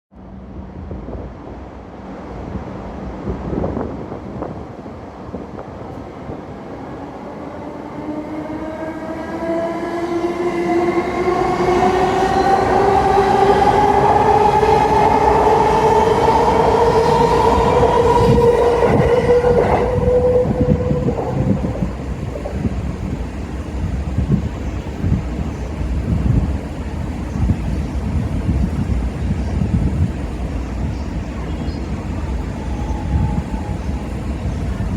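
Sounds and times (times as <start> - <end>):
train motor whine: 10.0 - 23.0.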